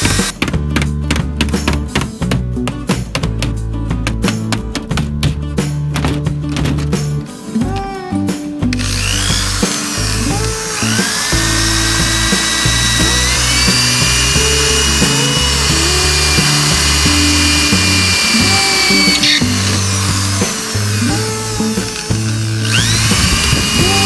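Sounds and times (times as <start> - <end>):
electric power tool whining: 0.0 - 0.4, 8.7 - 24.0
background music with bass line: 0.0 - 24.0.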